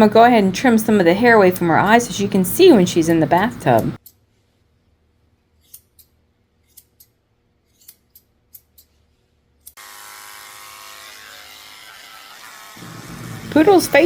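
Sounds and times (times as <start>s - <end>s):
scissors snipping hair: 5.6s - 9.0s.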